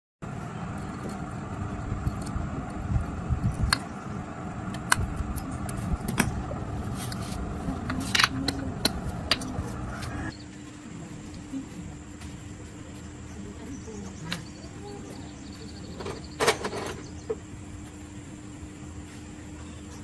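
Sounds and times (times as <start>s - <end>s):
low rumble: 0.2s - 10.4s.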